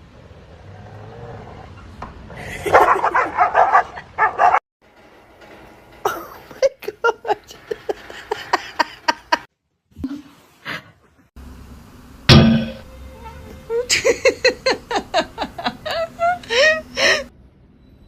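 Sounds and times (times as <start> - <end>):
dog barking and yipping: 2.6 - 4.6.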